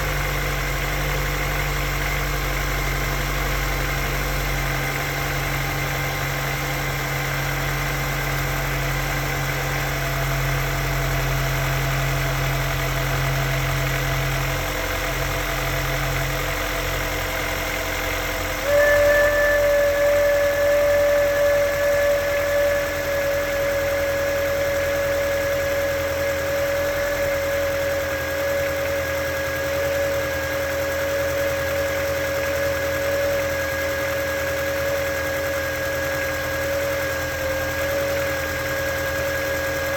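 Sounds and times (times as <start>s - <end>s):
car engine idling: 0.0s - 39.9s
high-pitched whistle: 18.6s - 30.4s.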